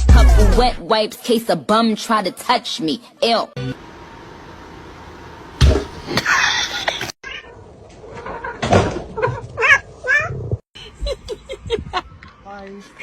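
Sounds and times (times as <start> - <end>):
loud thump: 5.6 - 6.1.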